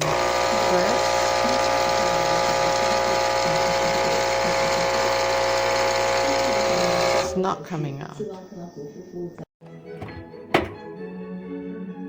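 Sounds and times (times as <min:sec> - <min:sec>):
espresso machine pump buzzing: 0:00.0 - 0:07.3, 0:10.0 - 0:10.9.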